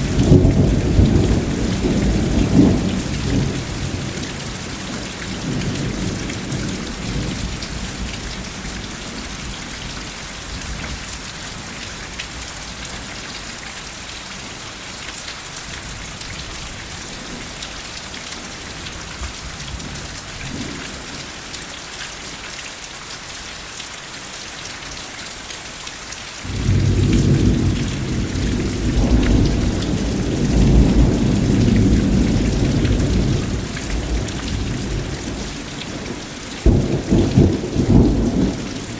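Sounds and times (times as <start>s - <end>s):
rolling thunder: 0.0s - 4.2s, 26.5s - 38.8s
steady rainfall: 0.0s - 38.9s.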